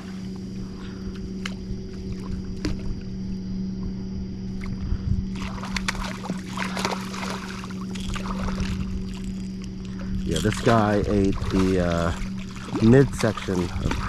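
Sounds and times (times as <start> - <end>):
steady low hum: 0.0 - 14.0
fish splashing at water surface: 5.4 - 14.0.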